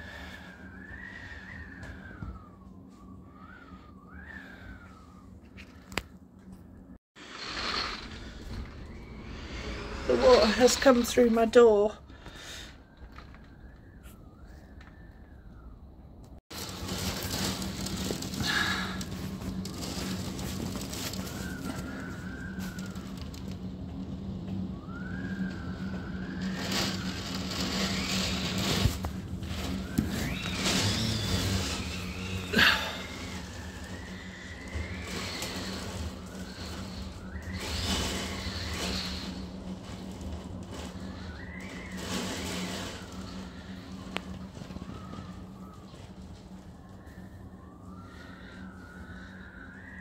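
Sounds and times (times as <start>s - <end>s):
storm wind rushing: 7.2s - 46.6s
faint wavering tone: 42.6s - 50.0s.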